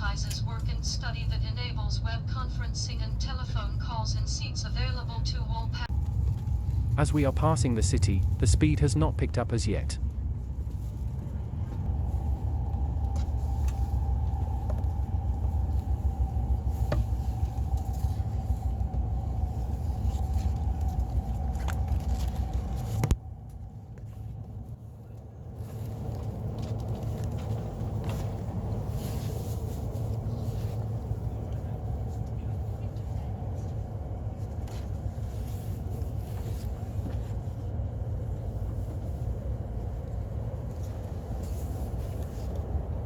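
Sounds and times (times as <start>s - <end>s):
train whine: 0.0s - 24.4s
train rumble: 0.0s - 43.0s.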